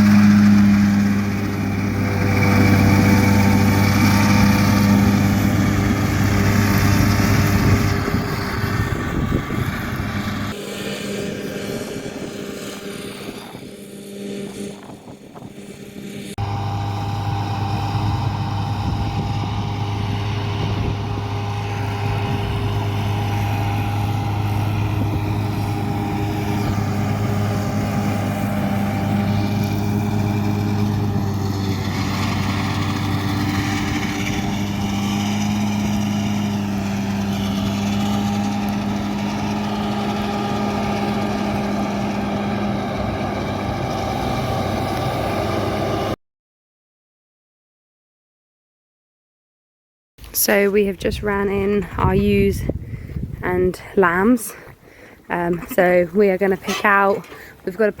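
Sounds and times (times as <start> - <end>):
diesel engine droning: 0.0 - 46.2.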